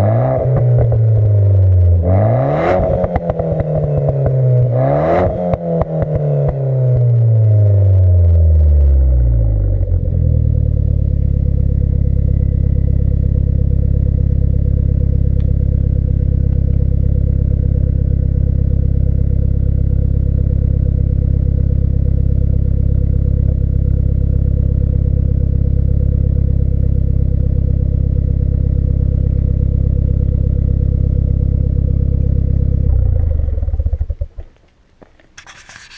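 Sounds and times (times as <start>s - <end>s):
car engine idling: 6.9s - 34.6s.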